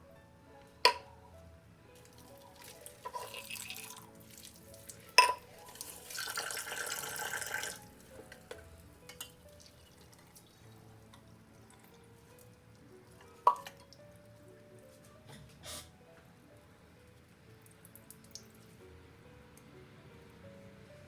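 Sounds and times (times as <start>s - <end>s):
water running from a tap: 2.0s - 8.0s
small ticks and drips: 2.0s - 8.5s, 9.1s - 14.1s, 17.2s - 18.8s.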